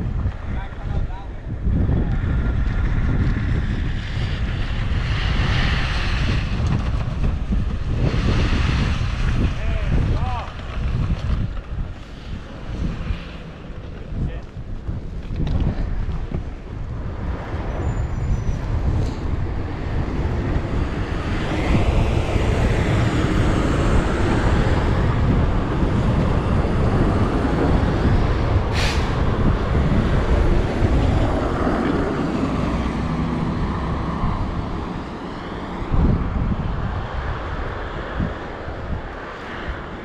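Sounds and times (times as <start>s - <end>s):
road traffic on snow: 0.0s - 40.0s
vehicle passing: 1.7s - 15.2s, 18.6s - 40.0s
short sharp hiss: 28.7s - 29.2s.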